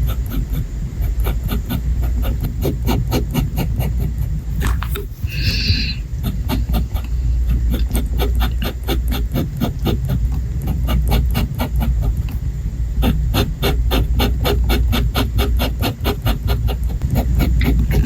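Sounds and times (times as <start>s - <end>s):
pen nib scratching on paper: 0.0s - 12.4s, 13.0s - 18.0s.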